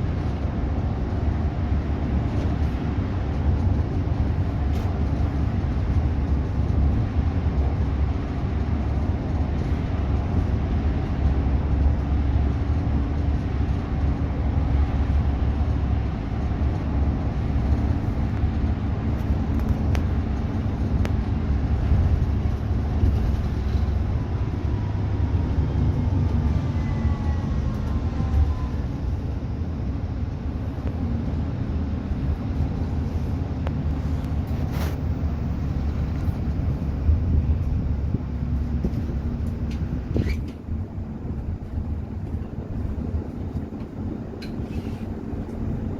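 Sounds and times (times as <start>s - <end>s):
bus engine and road rumble: 0.0s - 45.9s
faint high squeal: 26.5s - 28.9s.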